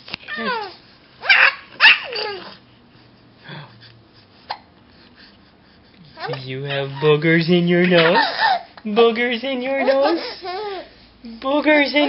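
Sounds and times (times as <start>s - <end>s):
baby squealing: 0.3s - 2.6s, 8.0s - 8.7s, 9.8s - 11.0s.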